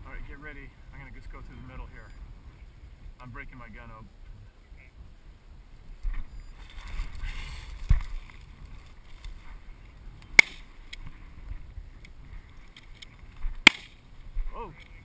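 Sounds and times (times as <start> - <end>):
brush crashing and rustling: 10.3 - 10.8, 12.9 - 14.1
shotgun shot: 13.7 - 13.9.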